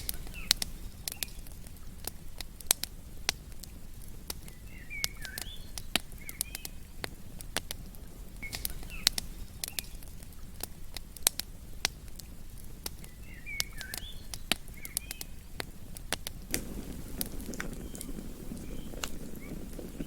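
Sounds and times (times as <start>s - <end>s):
short chirping calls: 0.0s - 2.0s, 3.8s - 7.5s, 8.3s - 10.6s, 12.2s - 16.1s, 17.7s - 20.0s
campfire crackling and popping: 0.0s - 20.0s.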